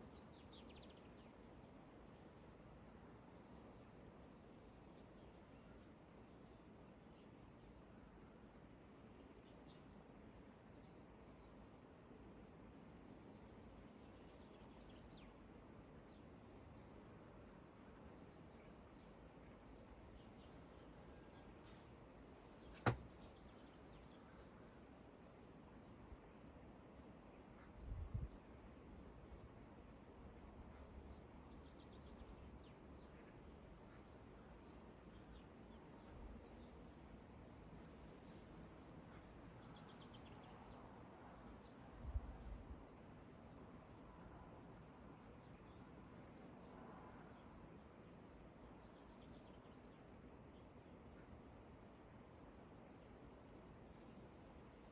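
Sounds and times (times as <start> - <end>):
sharp click: 22.7 - 23.2.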